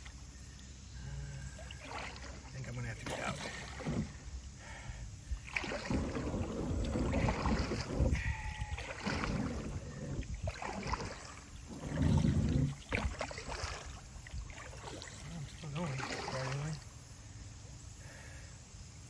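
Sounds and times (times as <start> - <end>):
paddle strokes and splashing: 0.0 - 18.4
kayak hull scraping over rocks: 1.7 - 16.9.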